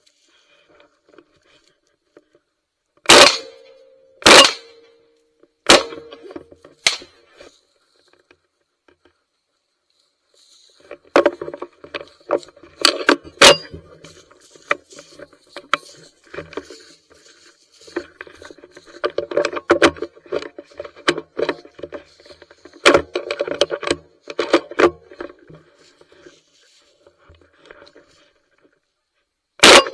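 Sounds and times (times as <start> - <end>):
shotgun shots: 3.1 - 4.8, 5.7 - 6.1, 6.8 - 7.1, 13.4 - 13.7, 29.6 - 29.9.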